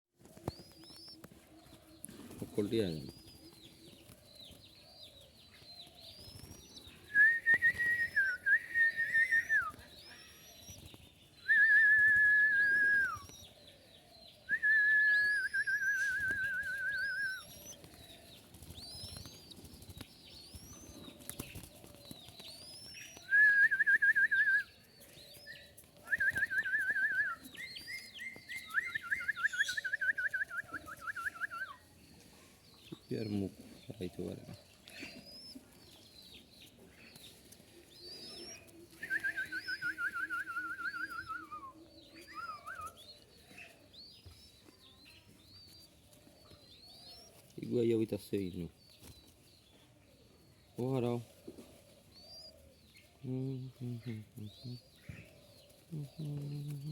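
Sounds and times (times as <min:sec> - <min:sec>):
dove chicks calling: 0:00.2 - 0:56.9.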